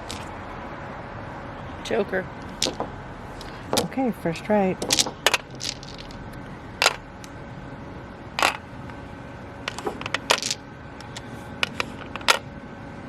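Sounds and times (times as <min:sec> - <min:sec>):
mahjong tiles clicking: 0:00.0 - 0:00.3, 0:02.4 - 0:03.9, 0:04.8 - 0:07.4, 0:08.4 - 0:09.0, 0:09.6 - 0:12.5.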